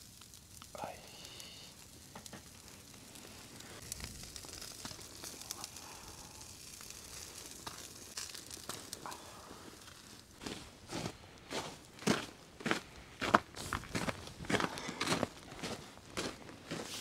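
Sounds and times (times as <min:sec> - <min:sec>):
food sizzling in a pan: 0:00.0 - 0:09.1
small pops and crackles: 0:00.0 - 0:17.0.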